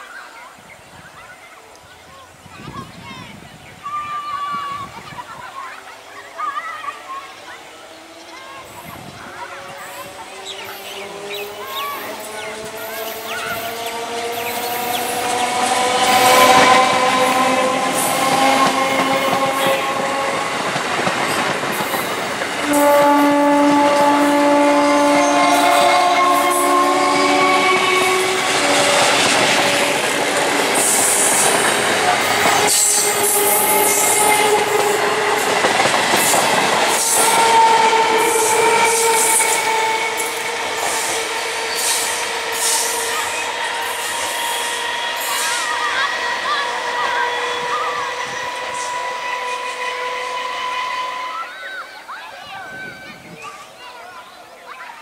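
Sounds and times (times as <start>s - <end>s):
train horn blast: 9.2s - 51.7s
train wheels clattering on rails: 9.7s - 51.0s.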